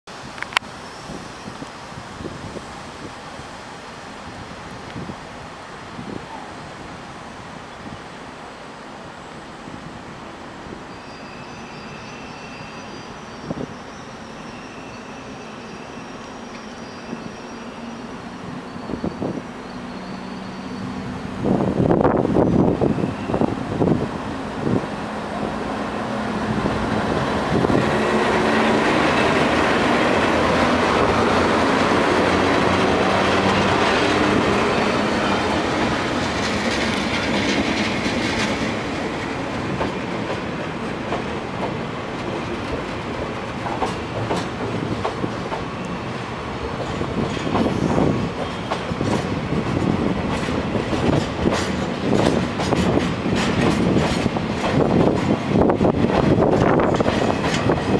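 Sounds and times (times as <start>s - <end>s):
freight train rolling past: 0.3s - 57.9s
wheels clicking over rail joints: 46.7s - 57.9s.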